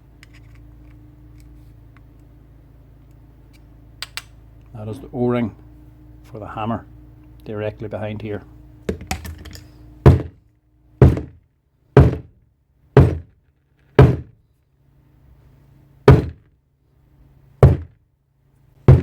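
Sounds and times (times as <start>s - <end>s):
heavy knocks on metal tool: 8.9s - 10.4s, 11.0s - 11.4s, 12.0s - 12.4s, 13.0s - 13.4s, 14.0s - 14.3s, 16.1s - 16.4s, 17.6s - 17.9s.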